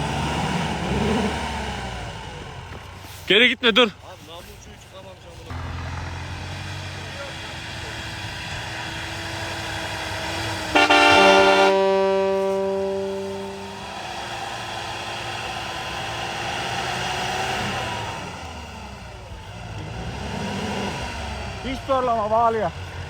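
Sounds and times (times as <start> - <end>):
pickup engine running: 0.0 - 23.0
vehicle horn blast: 10.7 - 14.2.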